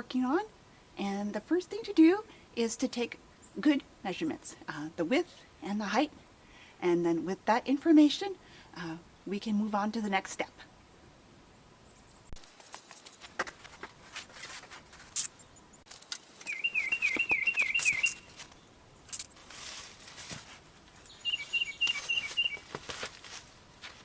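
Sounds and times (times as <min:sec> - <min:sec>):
songbirds chirping: 0:00.0 - 0:12.4, 0:15.2 - 0:24.0
bird quickly repeated notes: 0:16.5 - 0:18.3.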